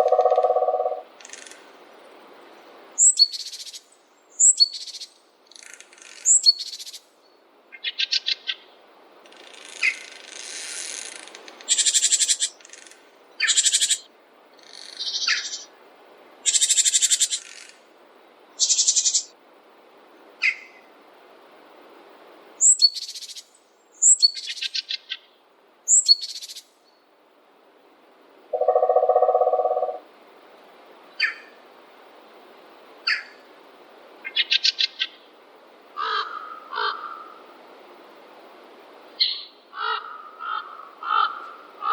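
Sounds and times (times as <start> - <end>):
lower longer bird call: 0.0 - 1.1, 28.5 - 30.0
birds chirping and trilling: 0.0 - 1.4, 13.4 - 15.7, 28.6 - 30.0, 39.2 - 41.9
faint steady hiss: 0.0 - 41.9.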